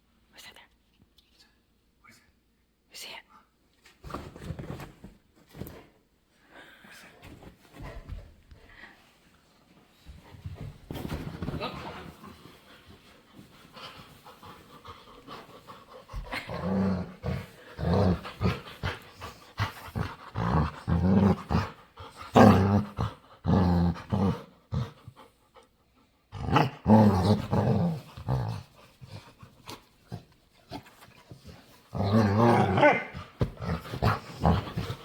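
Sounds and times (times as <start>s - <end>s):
dog growling: 14.7s - 25.2s, 26.3s - 35.0s.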